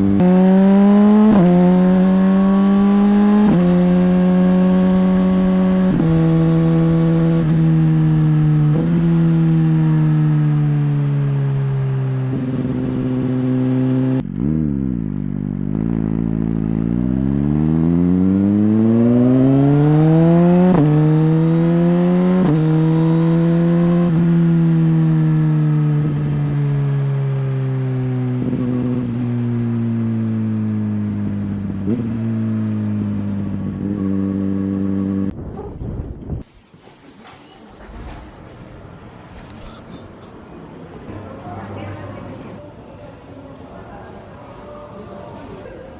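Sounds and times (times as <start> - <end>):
motorcycle engine revving: 0.0 - 35.5.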